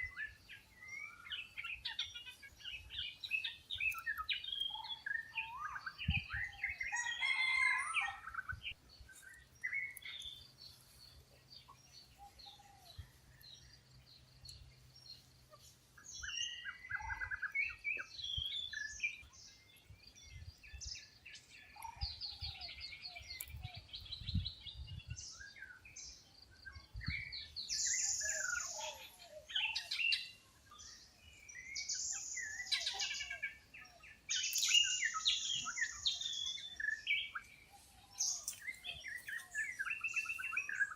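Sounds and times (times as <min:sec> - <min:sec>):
bird chirps: 0:00.0 - 0:40.9
high drawn-out bird calls: 0:27.4 - 0:30.8, 0:31.4 - 0:40.9.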